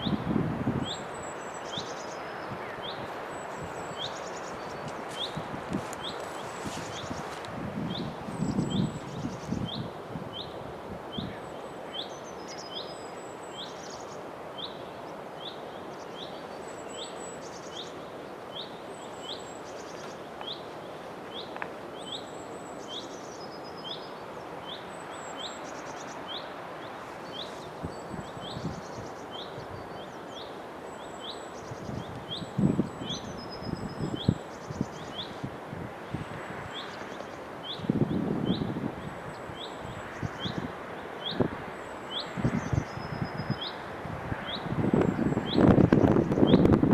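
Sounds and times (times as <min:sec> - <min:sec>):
birds chirping: 0:00.8 - 0:46.7
ambient background hiss: 0:08.1 - 0:38.2.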